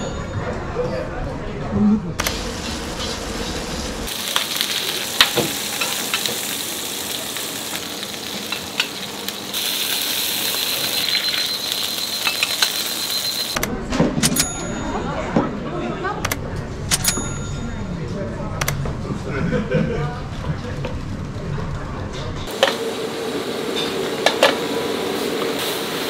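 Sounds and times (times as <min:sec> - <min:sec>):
food sizzling in hot oil: 0:02.2 - 0:13.6, 0:22.5 - 0:26.0
utensils clicking: 0:16.2 - 0:17.2.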